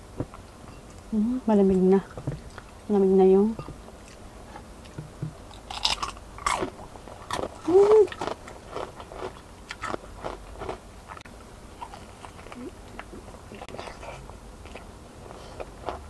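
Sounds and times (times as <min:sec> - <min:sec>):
person humming: 0:07.6 - 0:08.2.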